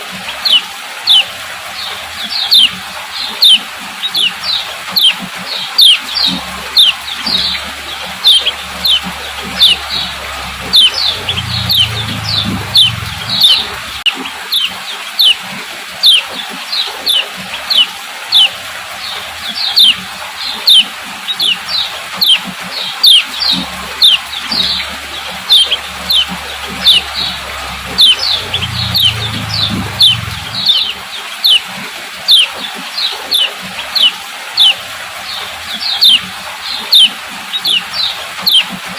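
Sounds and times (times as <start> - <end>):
bird giving sharp calls: 2.4 - 2.7, 3.4 - 15.4, 19.6 - 20.0, 20.6 - 22.4, 23.0 - 31.7, 36.0 - 36.2, 36.8 - 38.7.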